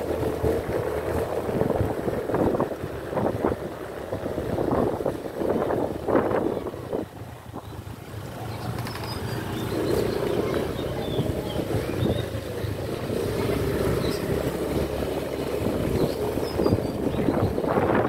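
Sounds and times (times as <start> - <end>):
motor scooter engine running: 0.0 - 18.0
wind buffeting microphone: 0.0 - 18.0.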